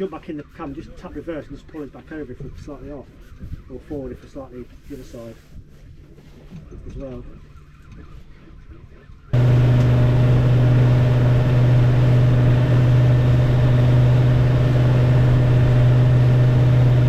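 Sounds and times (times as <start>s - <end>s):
boat engine running: 9.4s - 17.0s.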